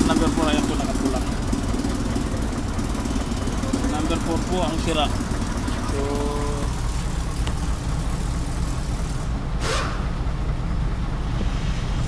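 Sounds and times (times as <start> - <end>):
diesel engine idling: 0.0 - 12.0
short hiss: 9.6 - 10.0.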